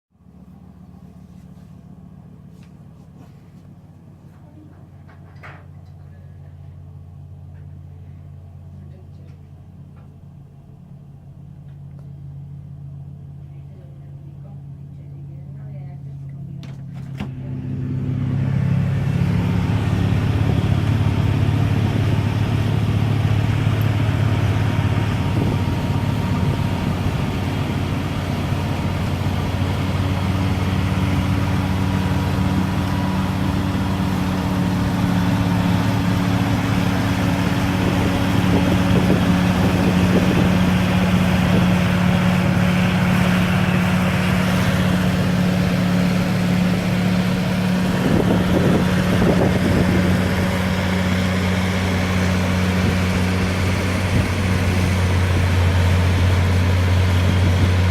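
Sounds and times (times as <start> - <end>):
car engine hum: 0.2 - 57.9
road and tyre noise: 14.9 - 57.9.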